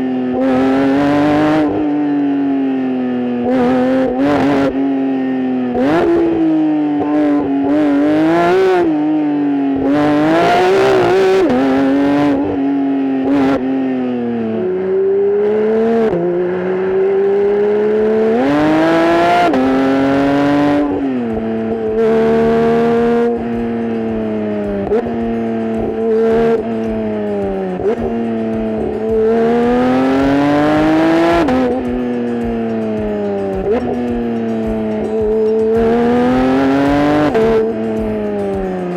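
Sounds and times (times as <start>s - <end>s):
car engine revving under load: 0.0s - 38.9s.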